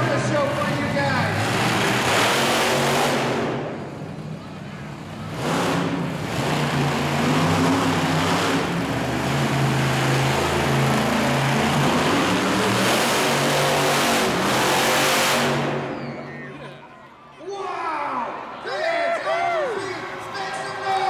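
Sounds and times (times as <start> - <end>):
monster truck engine revving: 0.0 - 16.7.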